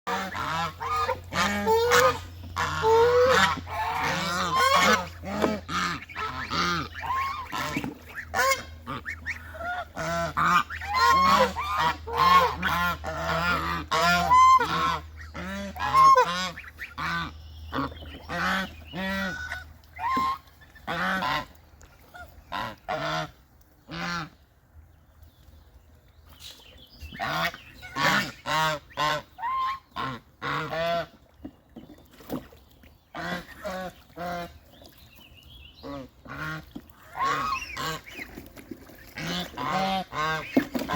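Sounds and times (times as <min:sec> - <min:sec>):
steady low hum: 0:00.1 - 0:31.4
birds calling: 0:00.1 - 0:40.9.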